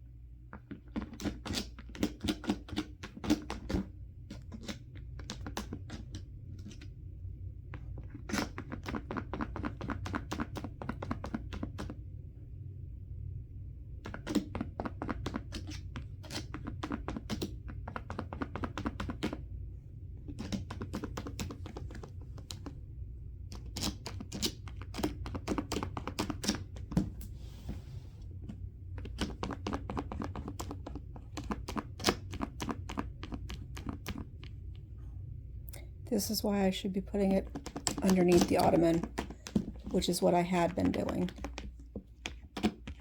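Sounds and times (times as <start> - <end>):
steady low hum: 11.6 - 16.2, 17.0 - 43.0.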